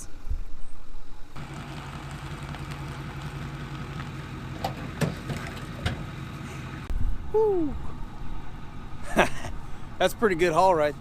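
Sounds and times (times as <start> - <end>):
engine idling: 1.4 - 6.9.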